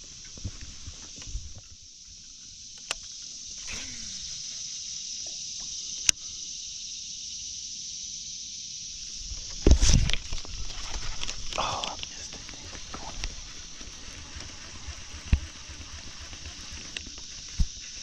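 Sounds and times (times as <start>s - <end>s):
insects droning: 0.0s - 18.0s
sharp clicks: 2.7s - 3.7s, 9.4s - 18.0s.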